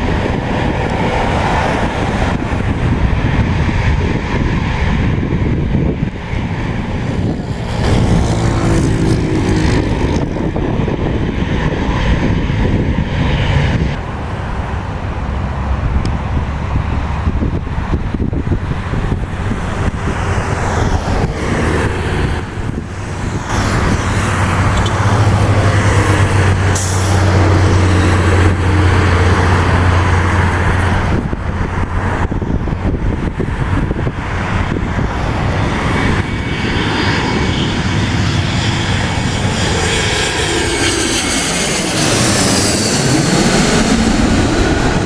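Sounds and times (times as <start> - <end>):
engine roar with low hum: 0.0 - 45.0
rushing noise: 0.0 - 45.0.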